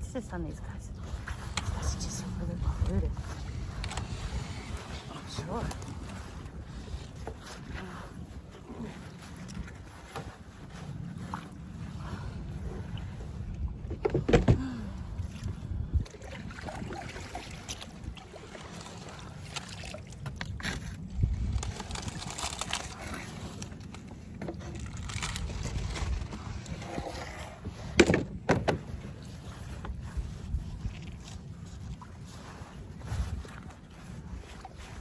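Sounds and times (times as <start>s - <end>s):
water lapping: 0.0s - 35.0s
knocks against kayak hull: 13.8s - 14.6s, 27.9s - 28.9s.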